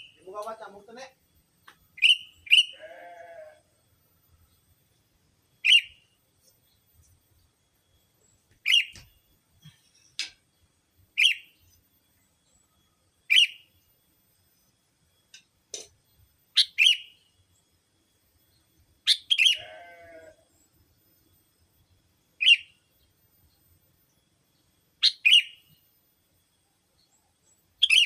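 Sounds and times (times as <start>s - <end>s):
bird calling sharp notes: 2.0s - 3.1s, 5.6s - 6.0s, 8.6s - 9.0s, 13.3s - 13.6s, 16.6s - 17.2s, 19.1s - 20.0s, 25.0s - 25.6s, 27.8s - 28.0s
bird harsh chattering call: 2.0s - 3.2s, 8.6s - 8.9s, 16.6s - 17.1s, 19.1s - 20.1s, 25.0s - 25.5s.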